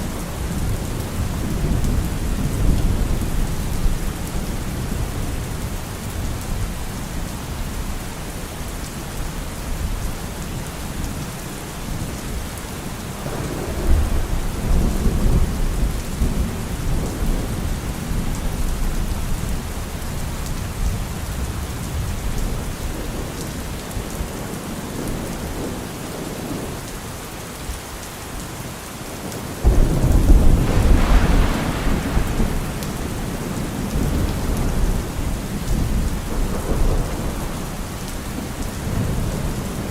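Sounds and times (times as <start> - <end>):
steady rain falling: 0.0 - 39.9
thunder rumbling: 13.2 - 19.4, 29.6 - 39.9.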